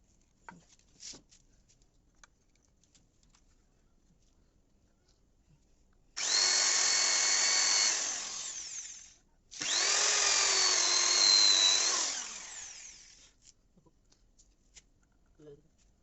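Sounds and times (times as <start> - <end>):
small electric motor whining: 6.2 - 13.3.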